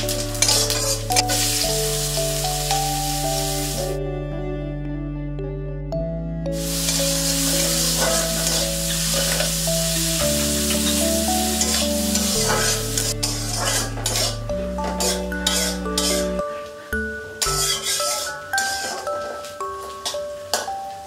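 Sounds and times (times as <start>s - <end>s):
metal spatula scraping pan: 0.0s - 1.6s, 6.6s - 9.7s, 10.6s - 16.5s, 17.4s - 19.4s
onions sizzling in hot oil: 0.0s - 4.0s, 6.6s - 16.3s, 17.3s - 21.0s.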